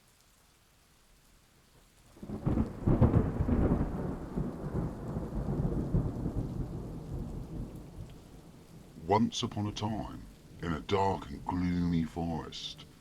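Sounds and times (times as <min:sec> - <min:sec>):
rain: 0:00.0 - 0:13.0
thunder rolling: 0:02.2 - 0:08.0.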